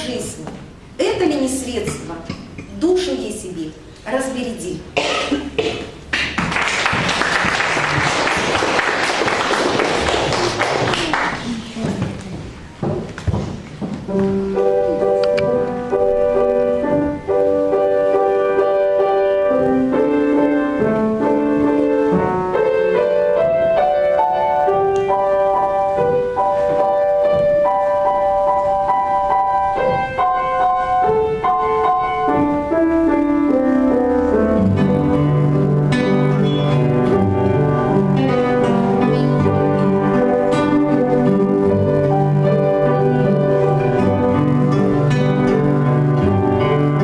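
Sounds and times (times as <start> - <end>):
instrumental ensemble music: 12.4 - 47.0.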